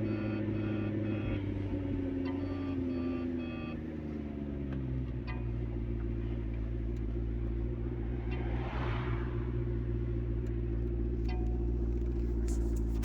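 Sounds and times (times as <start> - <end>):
electronic beeps: 0.0 - 1.5, 2.2 - 3.9
car engine idling: 0.0 - 13.0.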